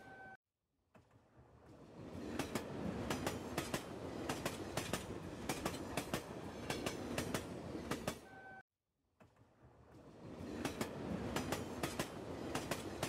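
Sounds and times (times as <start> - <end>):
brief steady tone: 0.0 - 0.4.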